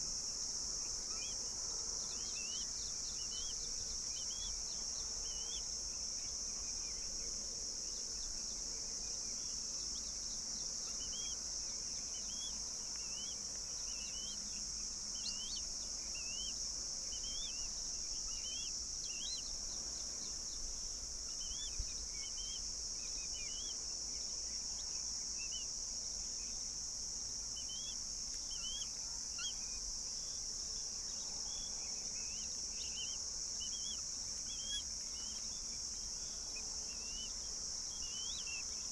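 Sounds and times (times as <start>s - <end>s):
high-pitched insect drone: 0.0s - 38.9s
bird chirps: 12.0s - 20.6s, 21.3s - 23.8s, 27.6s - 30.4s, 31.2s - 38.9s.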